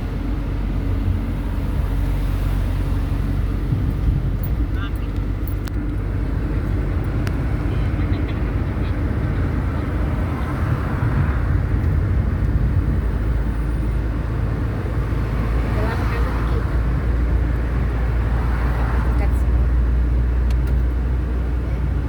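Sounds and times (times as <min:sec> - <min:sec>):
car driving on road: 0:00.0 - 0:22.0.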